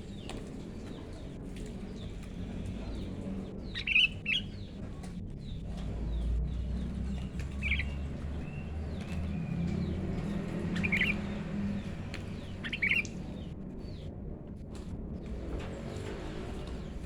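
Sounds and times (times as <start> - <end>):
steady low rumble: 0.0 - 15.7
bird chirping calls: 1.9 - 14.0.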